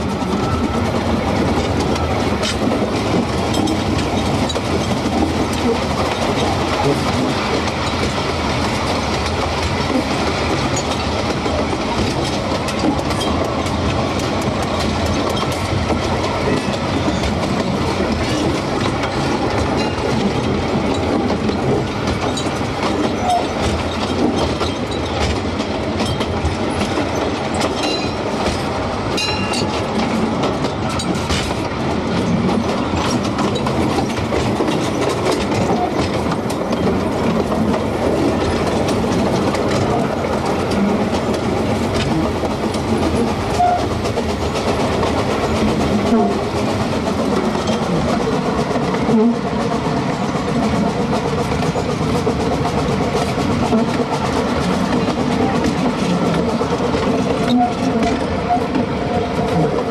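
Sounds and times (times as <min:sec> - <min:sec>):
train cars rumbling and rattling: 0:00.0 - 0:59.9
wheels clacking over rail joints: 0:00.0 - 0:59.9.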